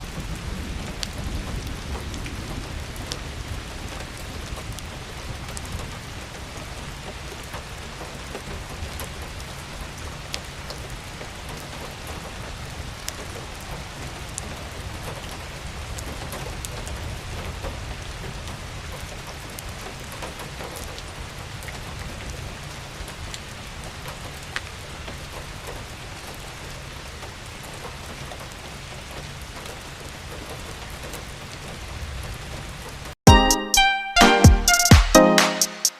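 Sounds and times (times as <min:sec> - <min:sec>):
rain falling: 0:00.0 - 0:35.3.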